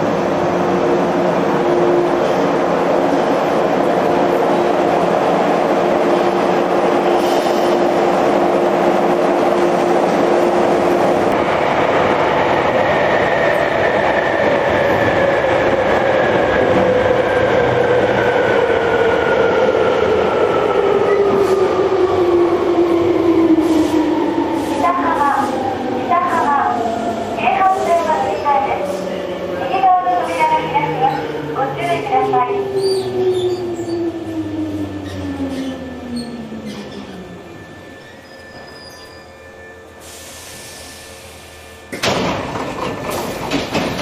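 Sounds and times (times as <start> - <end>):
electric train humming: 0.0 - 44.0
train running rumble: 41.9 - 44.0.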